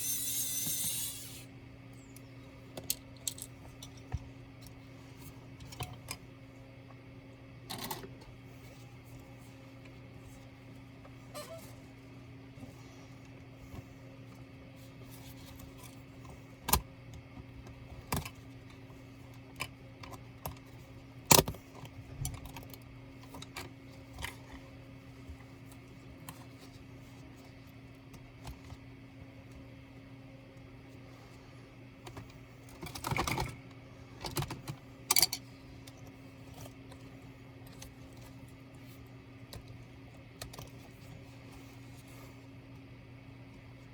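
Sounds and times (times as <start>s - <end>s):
steady low hum: 0.0s - 43.9s
clicks and knocks of small parts: 2.7s - 4.8s, 32.0s - 33.6s, 34.2s - 36.0s.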